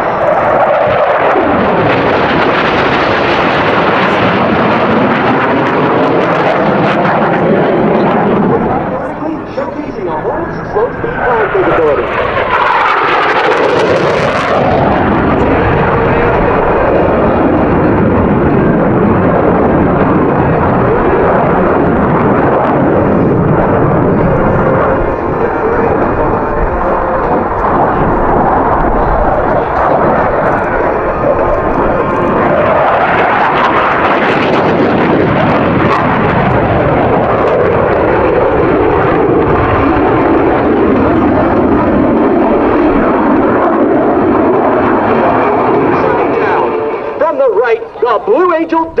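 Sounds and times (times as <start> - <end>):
jet flying past roaring: 0.0 - 49.0.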